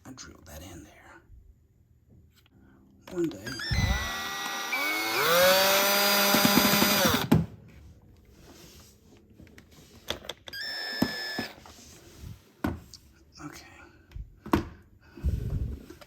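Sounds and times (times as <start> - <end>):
power drill driving screw: 3.5 - 7.4, 10.5 - 11.6.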